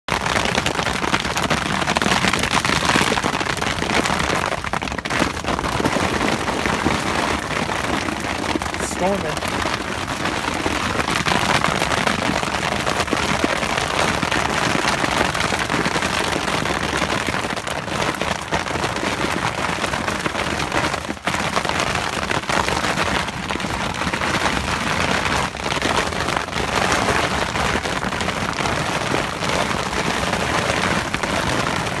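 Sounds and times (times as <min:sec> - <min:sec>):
rain and hail on tent: 0:00.1 - 0:32.0.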